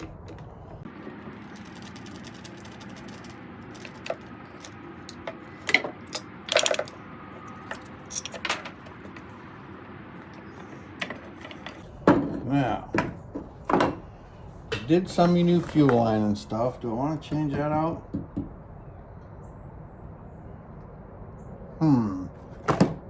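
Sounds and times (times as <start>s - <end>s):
small hard parts clinking: 0.9s - 9.4s, 10.3s - 11.9s.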